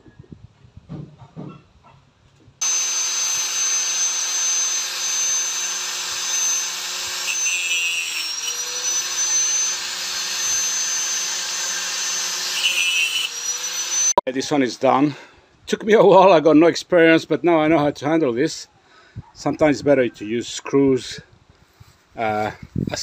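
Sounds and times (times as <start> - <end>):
motor-driven machine whining: 2.6 - 14.2.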